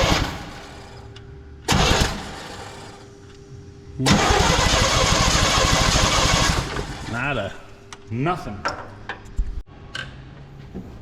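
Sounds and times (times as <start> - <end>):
starter motor cranking engine: 0.0 - 0.6, 1.7 - 3.0, 4.0 - 7.1.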